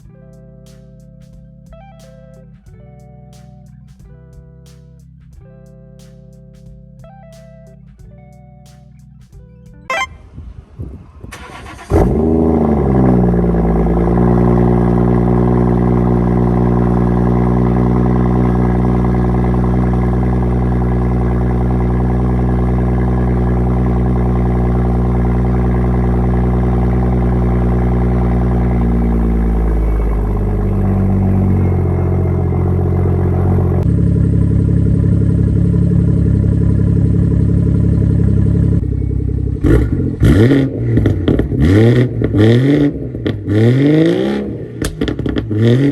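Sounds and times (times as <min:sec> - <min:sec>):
car engine starting and idling: 0:09.9 - 0:45.9.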